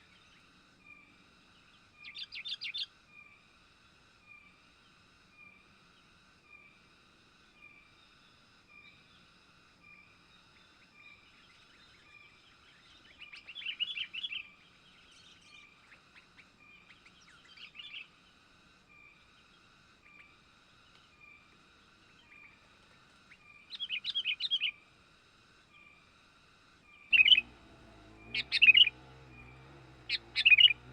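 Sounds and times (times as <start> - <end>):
bulbuls chirping: 27.0 - 30.9.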